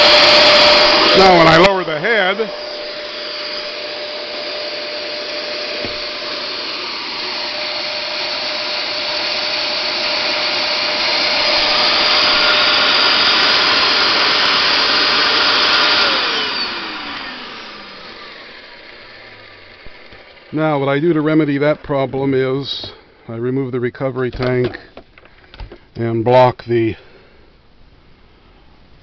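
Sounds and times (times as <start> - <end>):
motor winding down whine: 0.0 - 23.0
carpet cleaner suction motor: 0.0 - 23.1.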